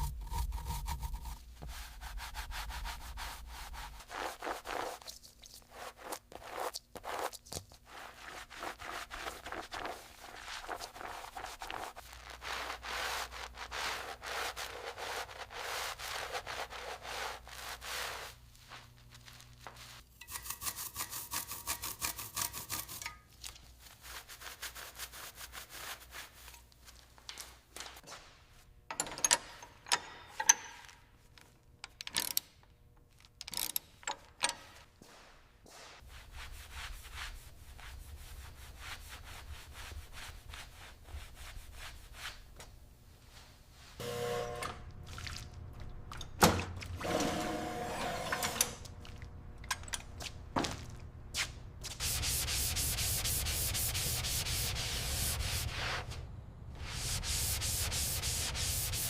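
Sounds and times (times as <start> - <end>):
hand sanding a surface: 0.0 - 23.0, 23.8 - 26.5, 35.8 - 42.6, 51.4 - 56.1, 56.8 - 59.0
short buzzing: 44.0 - 44.9.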